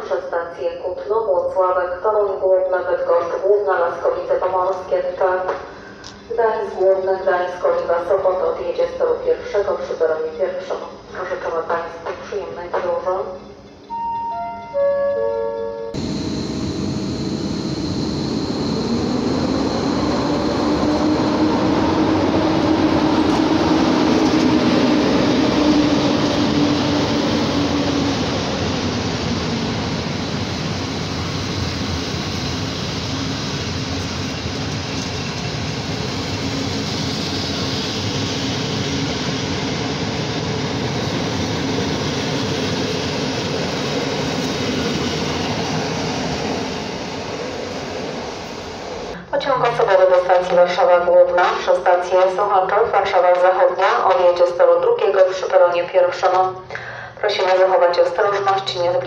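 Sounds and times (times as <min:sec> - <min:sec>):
electric locomotive hum: 0:13.4 - 0:51.3
train wheels rumbling on rails: 0:16.0 - 0:49.2.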